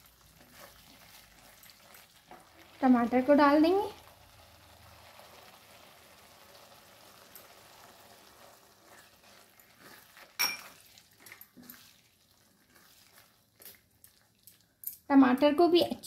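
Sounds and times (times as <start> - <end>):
puree sizzling in a pan: 0.0 - 14.9.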